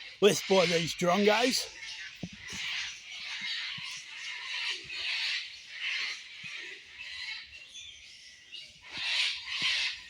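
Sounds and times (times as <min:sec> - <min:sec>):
bats and cockatoos screeching: 0:00.0 - 0:07.6, 0:08.8 - 0:10.0.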